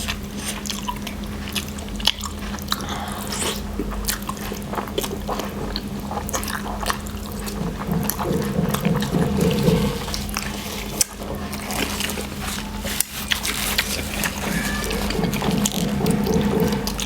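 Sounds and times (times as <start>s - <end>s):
person slurping and chewing: 0.0s - 17.0s
steady low hum: 0.0s - 17.0s.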